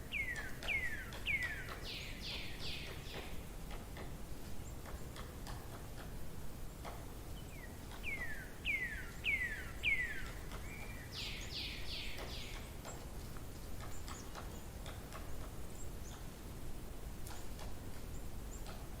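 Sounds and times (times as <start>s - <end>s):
songbird singing: 0.0s - 19.0s
faint ticks: 0.2s - 7.1s, 12.1s - 16.4s, 17.2s - 19.0s.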